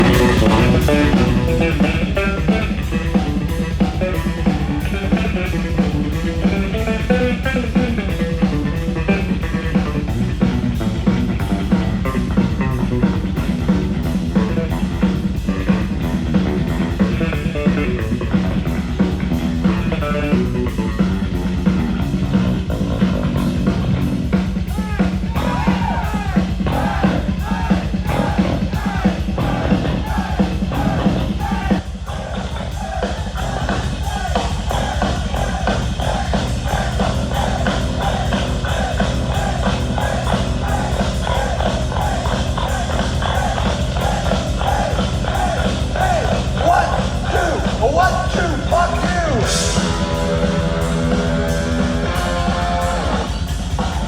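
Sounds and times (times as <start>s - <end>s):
bending wavering guitar notes: 0.0s - 3.6s, 49.4s - 54.0s
driving drum strokes: 0.0s - 54.0s
heavy metal band playing: 0.0s - 54.0s.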